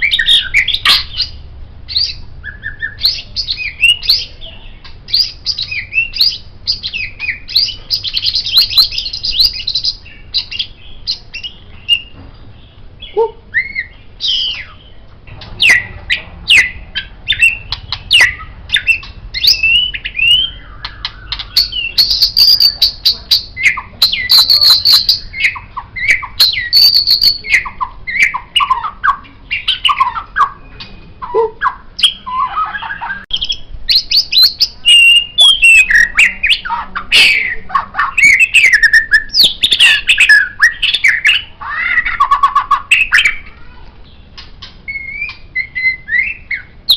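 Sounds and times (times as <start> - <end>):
songbird singing whistles and trills: 0.0 - 12.2, 13.0 - 15.0, 15.6 - 43.5, 44.3 - 46.9.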